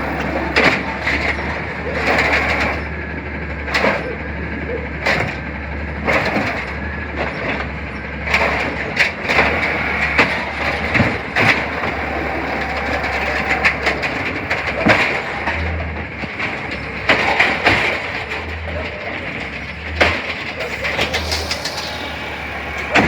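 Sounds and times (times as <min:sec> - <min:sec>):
garbage truck engine drone: 0:00.0 - 0:23.0
sharp metallic clanks and knocks: 0:05.0 - 0:23.0.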